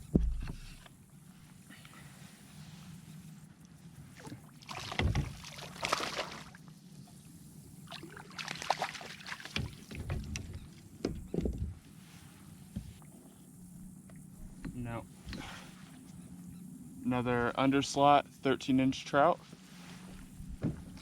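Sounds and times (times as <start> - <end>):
knocks on kayak hull: 0.0 - 0.7, 5.0 - 5.4, 20.5 - 21.0
fish splashing: 4.2 - 6.6, 7.9 - 10.0.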